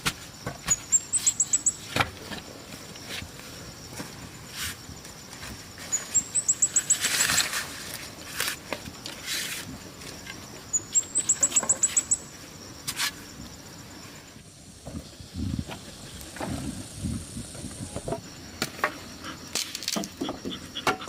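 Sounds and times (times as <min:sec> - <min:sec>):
bird trilling: 0:00.7 - 0:01.9, 0:05.9 - 0:07.4, 0:10.7 - 0:12.3
rustling: 0:02.1 - 0:10.5.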